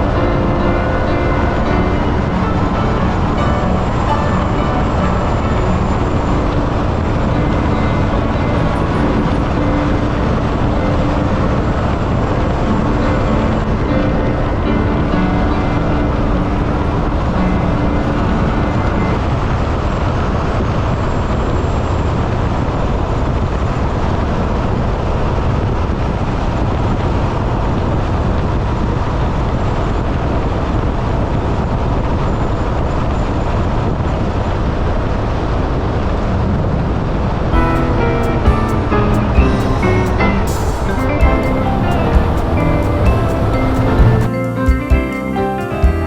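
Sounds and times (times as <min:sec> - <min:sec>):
wind rushing: 0:37.0 - 0:44.4.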